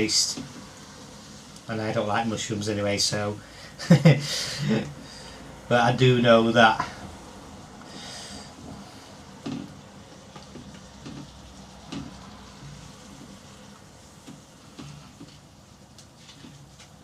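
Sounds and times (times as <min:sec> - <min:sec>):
food sizzling in a pan: 0:00.0 - 0:04.0, 0:07.0 - 0:16.0.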